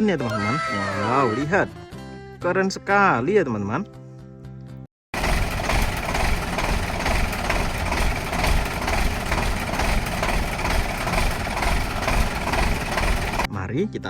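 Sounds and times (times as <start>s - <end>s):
truck engine idling: 5.2s - 13.5s.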